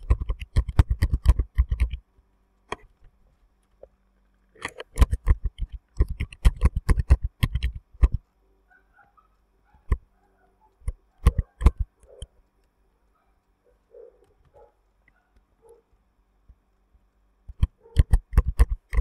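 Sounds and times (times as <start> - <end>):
keyboard typing: 0.0 - 2.0, 4.6 - 8.2, 10.7 - 12.5, 17.5 - 19.0.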